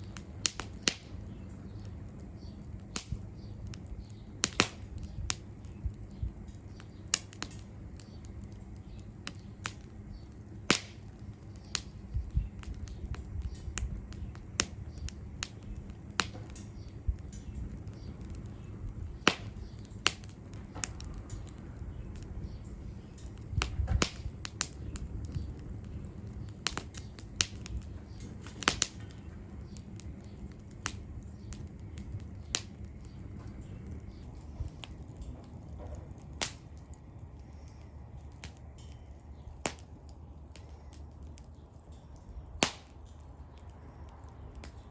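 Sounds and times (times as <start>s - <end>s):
low steady rumble: 0.0s - 44.9s
wood fire crackling: 0.0s - 44.9s.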